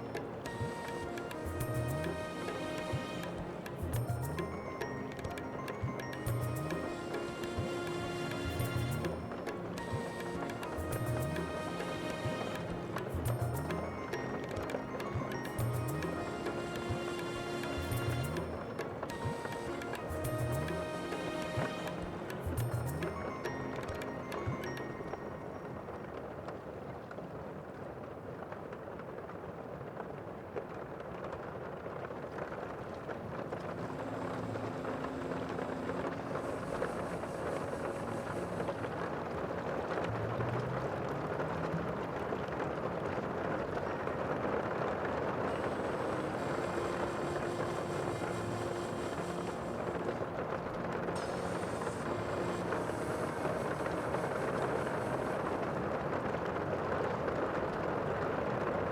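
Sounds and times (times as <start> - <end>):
wind: 0.0 - 58.9
sea rushing: 33.4 - 58.9.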